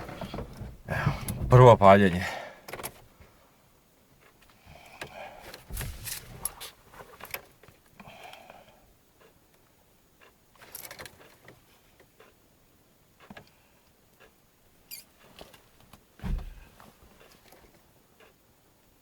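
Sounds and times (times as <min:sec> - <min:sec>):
faint clicks and rustles: 0:13.2 - 0:18.4
dull low thump: 0:16.2 - 0:16.7.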